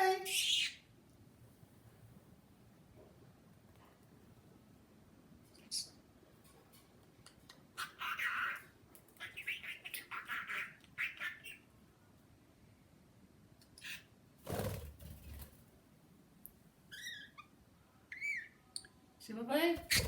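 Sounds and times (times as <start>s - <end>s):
bird chirping: 16.9s - 18.7s, 19.8s - 20.0s.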